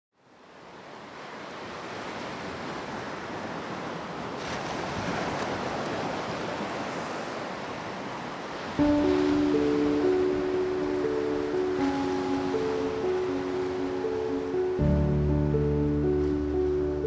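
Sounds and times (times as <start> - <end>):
wind: 0.1 - 17.0
sea waves washing in: 0.7 - 17.0.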